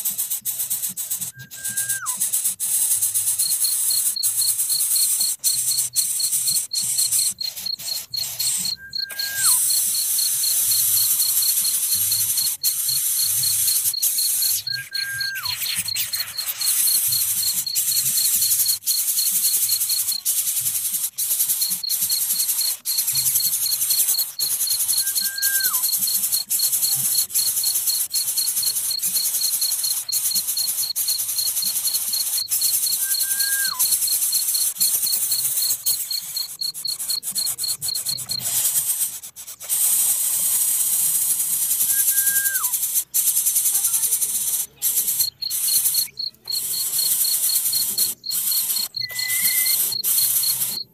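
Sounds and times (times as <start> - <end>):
insects buzzing: 0.0 - 50.9
cricket pulsed chirping: 0.2 - 50.9
bird whistled note: 1.3 - 2.3, 8.4 - 10.3, 14.2 - 17.5, 24.9 - 26.0, 32.6 - 34.0, 41.8 - 42.8, 48.8 - 50.6.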